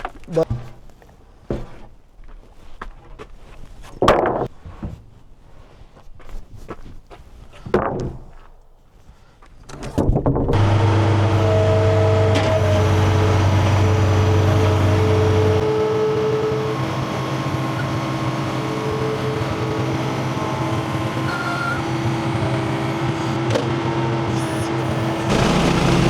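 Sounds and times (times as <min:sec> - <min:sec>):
small gasoline engine running: 0:10.6 - 0:26.0.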